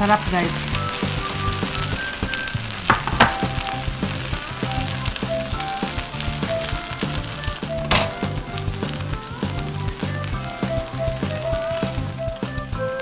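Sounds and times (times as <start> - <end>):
batter balls sizzling in a pan: 0.0 - 13.0
soft background music: 0.0 - 13.0.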